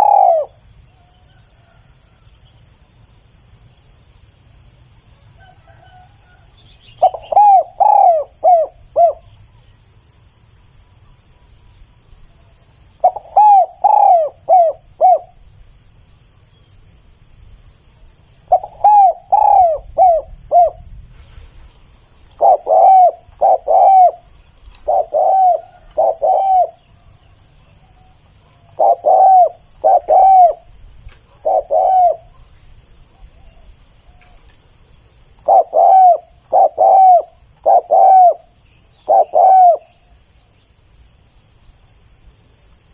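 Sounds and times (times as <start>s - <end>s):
dove cooing: 0.0s - 0.6s, 7.0s - 9.4s, 13.0s - 15.4s, 18.5s - 20.9s, 22.4s - 27.1s, 28.0s - 30.7s, 31.3s - 32.5s, 35.4s - 40.0s
high insect trill: 0.0s - 42.9s.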